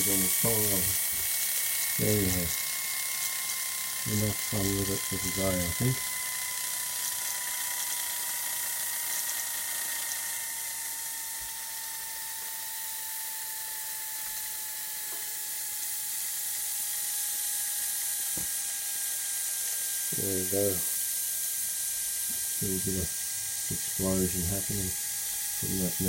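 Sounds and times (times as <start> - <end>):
steam hissing: 0.0 - 2.8
toy steam engine whining: 0.0 - 11.6, 19.1 - 26.0.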